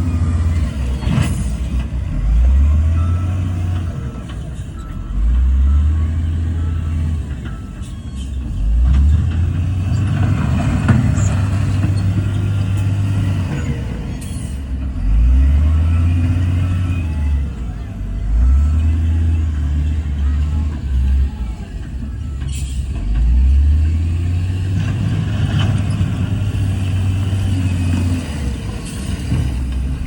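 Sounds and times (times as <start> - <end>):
heavy diesel engine droning: 0.0 - 30.0.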